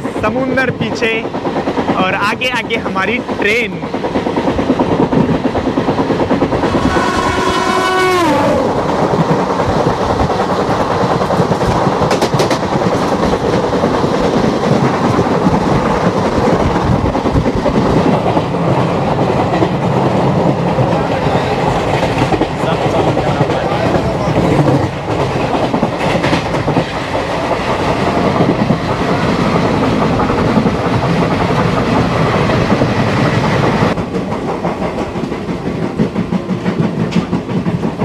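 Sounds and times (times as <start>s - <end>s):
train coaches rushing past: 0.0s - 38.0s
train wheels clickety-clack: 0.0s - 38.0s
train horn: 6.7s - 8.7s.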